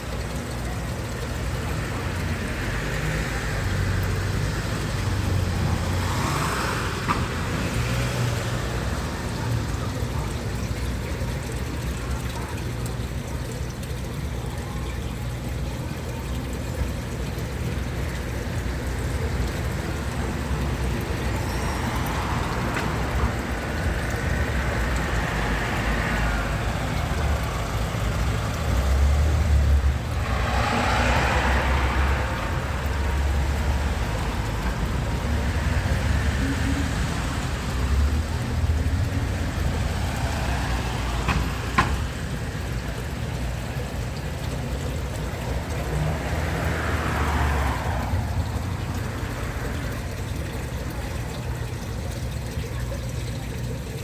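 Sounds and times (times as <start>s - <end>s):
vehicle engine rumbling: 0.0s - 54.0s.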